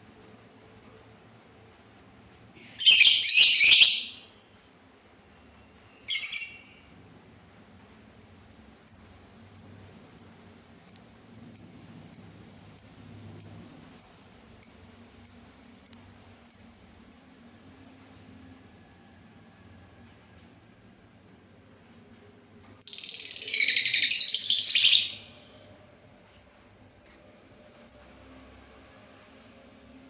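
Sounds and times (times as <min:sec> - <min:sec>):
faint soft chirping: 0:02.6 - 0:25.8, 0:27.8 - 0:29.0
short high bird chirps: 0:02.8 - 0:04.3, 0:06.0 - 0:06.9.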